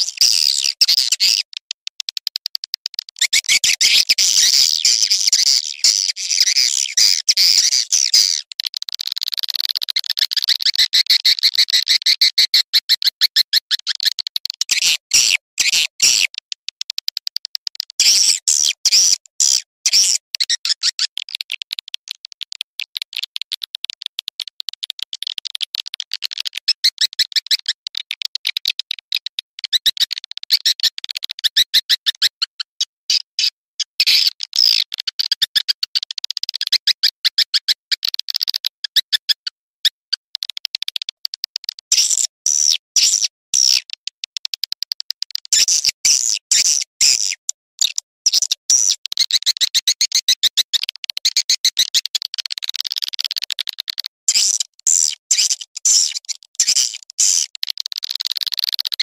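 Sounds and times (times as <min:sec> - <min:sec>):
high-pitched bird twittering: 0:00.0 - 0:01.6, 0:03.1 - 0:08.5, 0:18.0 - 0:21.1, 0:45.5 - 0:50.2, 0:54.3 - 0:57.5.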